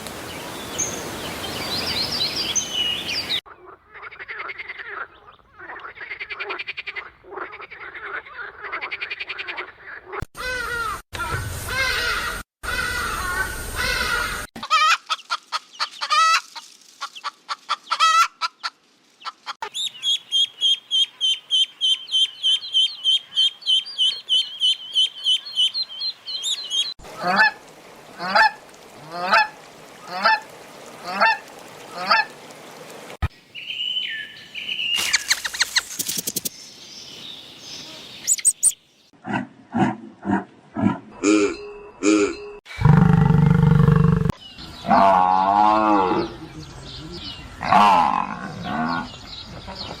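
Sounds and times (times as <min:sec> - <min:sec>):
high bird chirps: 0:33.6 - 0:38.8.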